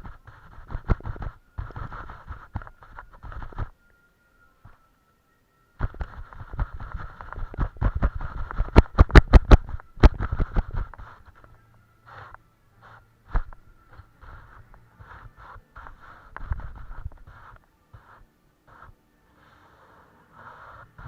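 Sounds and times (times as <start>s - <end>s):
paintbrush scrubbing on canvas: 0.0s - 3.7s, 12.1s - 21.0s.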